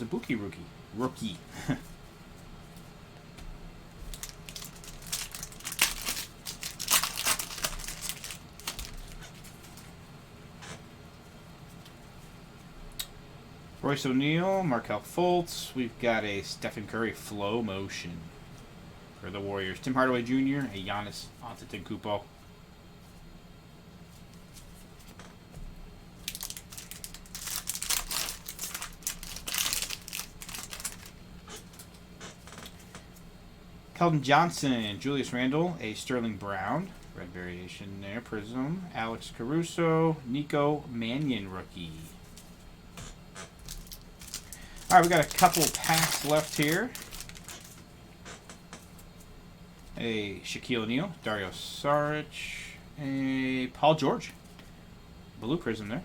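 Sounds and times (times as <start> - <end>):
faint steady hum: 0.0 - 56.0
foil wrapper crinkling: 4.0 - 9.9, 26.2 - 31.9, 43.6 - 47.9.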